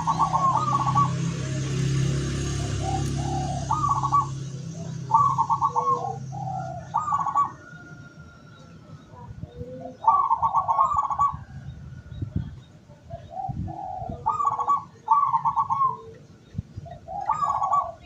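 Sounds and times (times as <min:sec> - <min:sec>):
dove cooing: 0:00.0 - 0:08.3, 0:08.9 - 0:11.8, 0:12.4 - 0:18.0.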